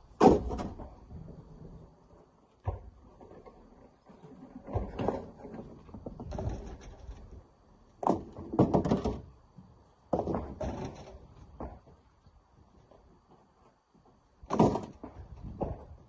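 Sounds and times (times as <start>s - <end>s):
rocks thudding into truck bed: 0.2s - 1.3s, 4.6s - 6.9s, 8.0s - 9.3s, 10.1s - 11.9s, 14.4s - 16.0s.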